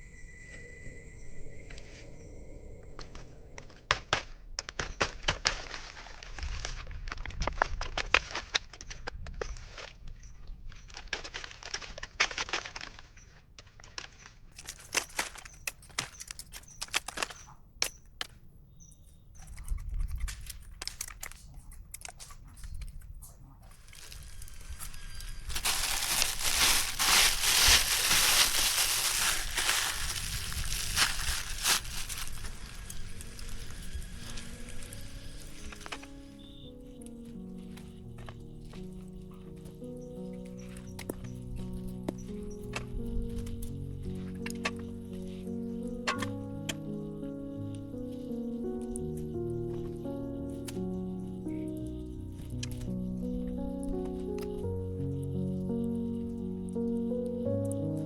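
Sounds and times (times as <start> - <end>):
dry plant material crackling: 23.7 - 46.3.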